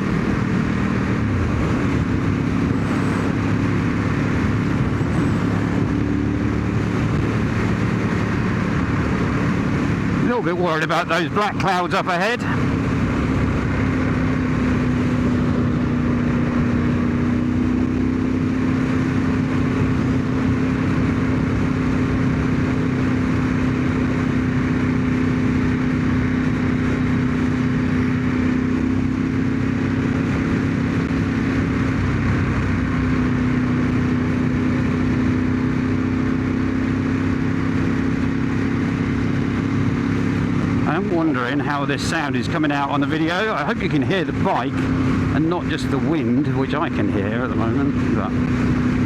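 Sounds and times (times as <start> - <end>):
wind rushing over microphone: 0.0 - 10.4
motorcycle engine running: 0.0 - 49.0.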